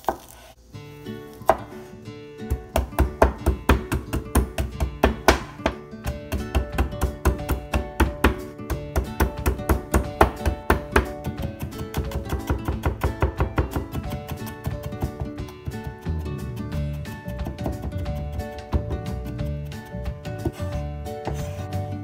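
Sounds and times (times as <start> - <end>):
acoustic guitar music: 0.6 - 22.0
knife chopping on wooden board: 1.4 - 1.8, 2.5 - 16.0, 17.4 - 18.9.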